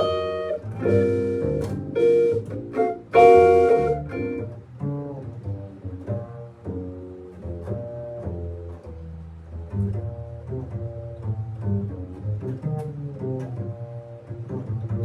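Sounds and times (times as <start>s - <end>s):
band playing: 0.0s - 4.5s
steady bass line: 0.0s - 15.0s.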